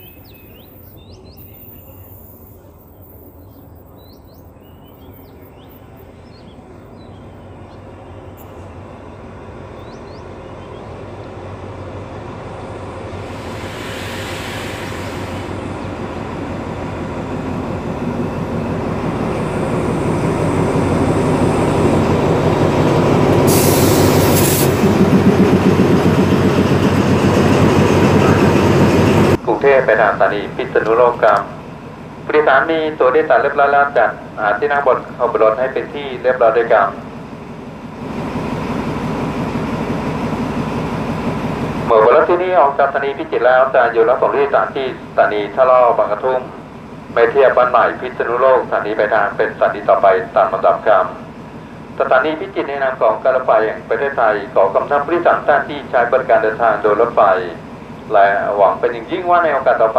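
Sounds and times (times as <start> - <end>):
locomotive engine drone: 0.0 - 59.9
rumbling train wheels: 0.2 - 59.9
brief high hisses: 13.2 - 15.7, 23.5 - 24.8.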